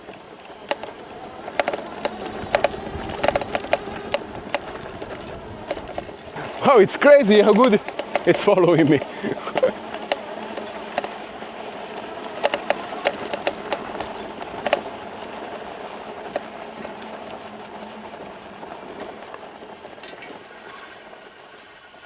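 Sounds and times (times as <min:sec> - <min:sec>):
sharp clicks and knocks: 0:00.0 - 0:11.2, 0:11.9 - 0:17.4
drone propellers buzzing: 0:00.0 - 0:20.1.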